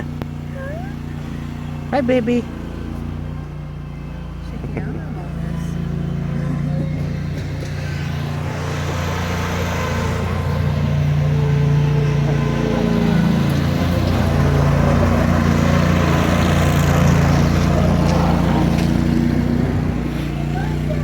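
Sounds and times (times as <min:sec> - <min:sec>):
engine humming: 0:00.0 - 0:21.0.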